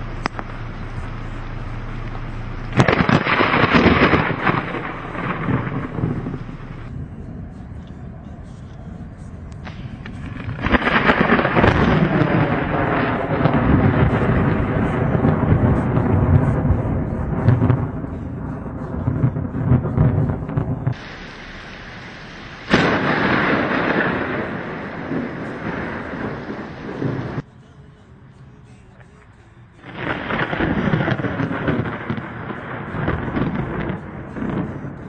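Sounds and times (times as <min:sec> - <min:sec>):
steady rain: 0:00.0 - 0:06.9, 0:09.7 - 0:17.8, 0:18.9 - 0:27.4, 0:29.8 - 0:35.0
sharp thunder clap: 0:02.7 - 0:06.9, 0:09.7 - 0:18.0, 0:19.0 - 0:27.4, 0:29.9 - 0:34.9
rolling thunder: 0:02.7 - 0:07.5, 0:09.6 - 0:27.4, 0:29.8 - 0:35.0.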